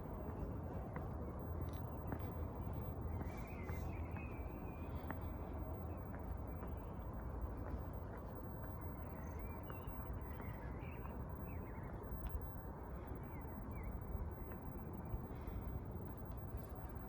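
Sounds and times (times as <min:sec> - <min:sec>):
low city rumble: 0:00.0 - 0:17.0
small birds chirping: 0:03.0 - 0:06.8.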